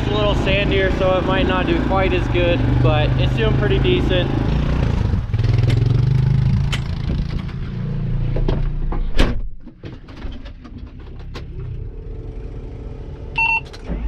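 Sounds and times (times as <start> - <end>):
vehicle engine running: 0.0 - 9.0, 10.7 - 14.0
short electronic beep: 13.4 - 13.7.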